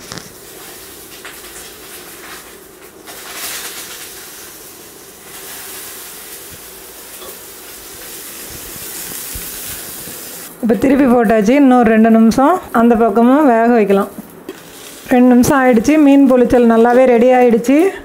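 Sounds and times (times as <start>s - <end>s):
fish sizzling in hot oil: 0.0s - 10.6s, 14.5s - 15.2s.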